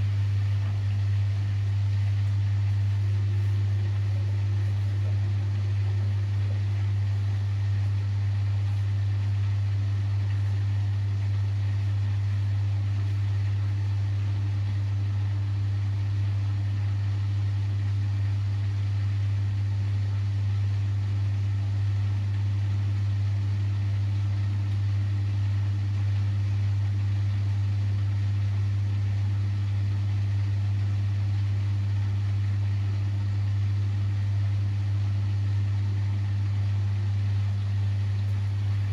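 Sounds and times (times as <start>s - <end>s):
washing machine humming: 0.0s - 38.9s.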